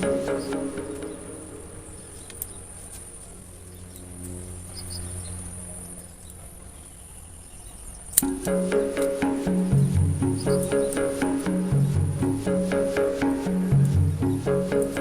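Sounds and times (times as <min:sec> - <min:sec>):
low steady hum: 0:08.2 - 0:15.0.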